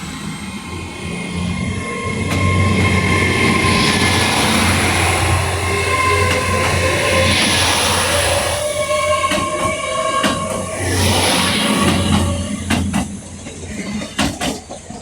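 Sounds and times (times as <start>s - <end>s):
diesel train engine hum: 0.0s - 15.0s
rail noise: 0.0s - 15.0s.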